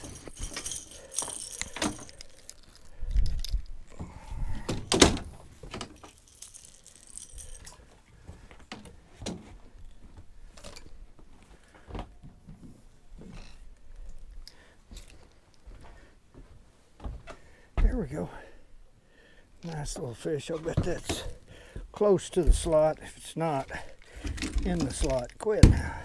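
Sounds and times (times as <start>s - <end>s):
fishing gear knocking and rattling: 0.0s - 9.4s, 20.6s - 26.0s.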